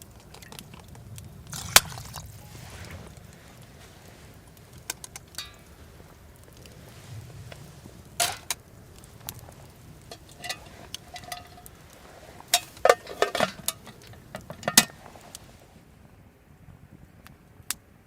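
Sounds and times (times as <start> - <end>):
metal cookware clinking: 8.2 - 8.6, 10.0 - 15.0.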